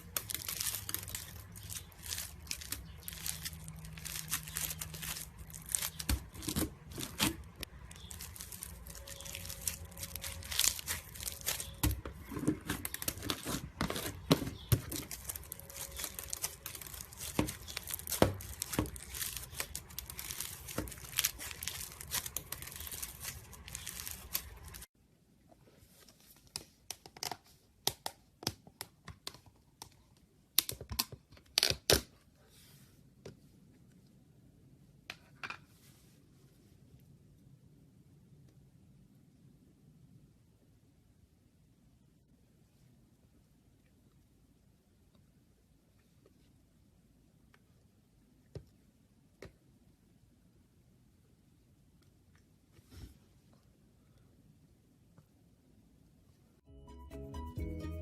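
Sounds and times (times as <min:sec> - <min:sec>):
dense crackling and crinkling: 0:00.0 - 0:24.9.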